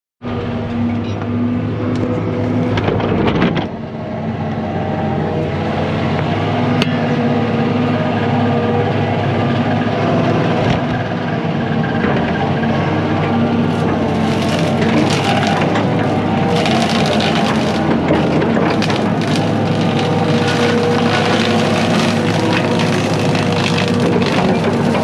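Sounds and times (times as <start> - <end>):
heavy engine running under load: 0.2 - 25.0
sharp cracks and knocks: 13.7 - 25.0.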